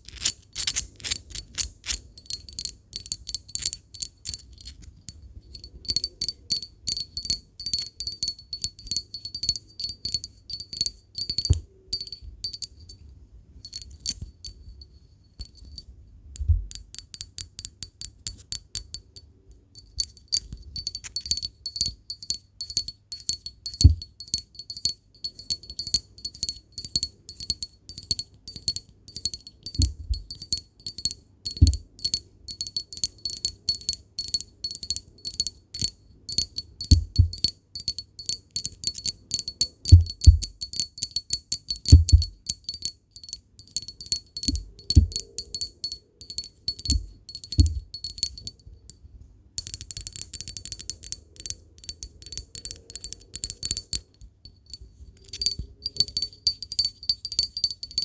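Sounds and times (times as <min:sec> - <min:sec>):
rapid tapping on glass: 0:05.6 - 0:12.8, 0:19.9 - 0:48.6, 0:49.6 - 0:58.0
glass ringing high tone: 0:43.2 - 0:48.5, 0:55.2 - 0:58.0.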